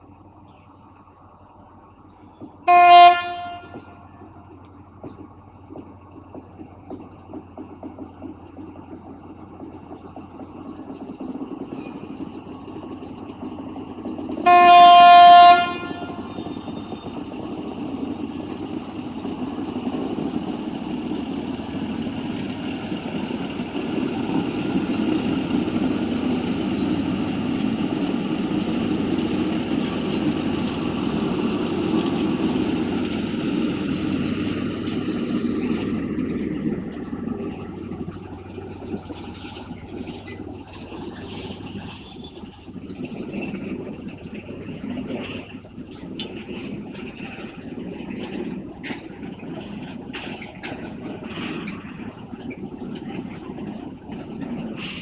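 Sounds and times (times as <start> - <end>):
diesel train engine rumble: 0.0 - 55.0
train horn blast: 2.6 - 4.2, 14.4 - 16.3.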